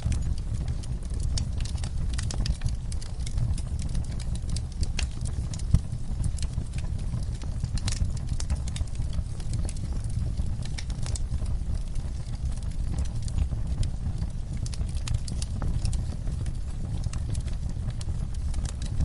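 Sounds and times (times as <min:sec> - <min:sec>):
campfire crackling and popping: 0:00.0 - 0:19.0
low fire rumble: 0:00.0 - 0:19.0.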